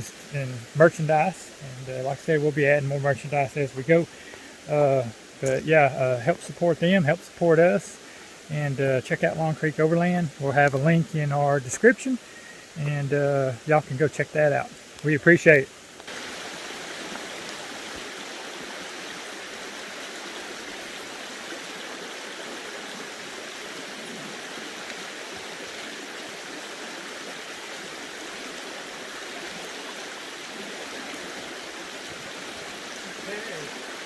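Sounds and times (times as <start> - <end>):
creek water flowing over rocks: 0.0 - 34.0.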